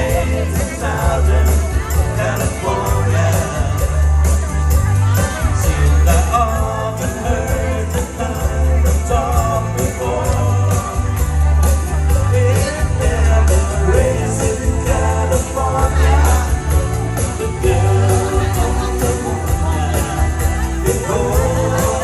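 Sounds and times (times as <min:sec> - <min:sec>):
band playing pop-rock song: 0:00.0 - 0:22.0.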